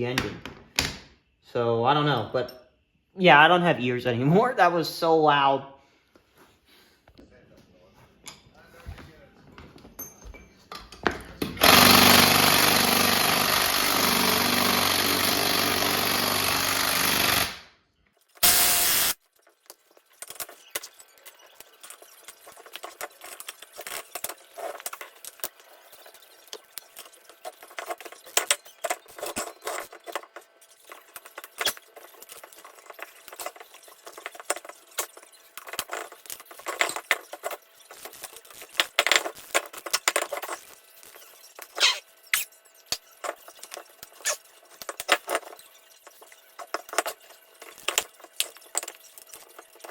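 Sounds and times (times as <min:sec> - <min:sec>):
power tool running: 0:11.6 - 0:17.7, 0:18.4 - 0:19.2.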